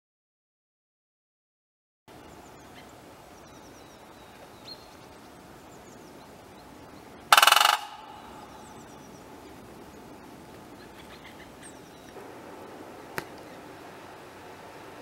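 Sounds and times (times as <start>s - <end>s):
small birds chirping: 2.1s - 12.2s, 12.8s - 15.0s
woodpecker drumming: 4.0s - 12.2s.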